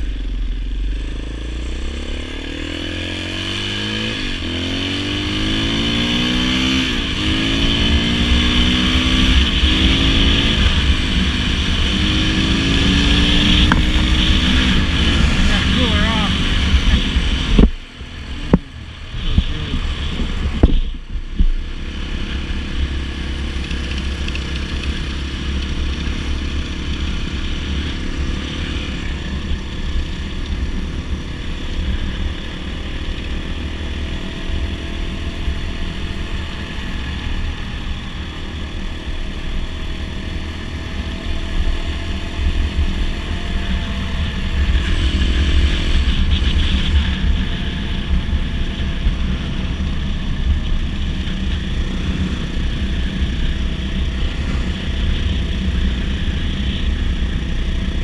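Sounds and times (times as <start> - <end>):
dirt bike engine running: 0.0 - 58.0
wind rumble on microphone: 5.5 - 58.0.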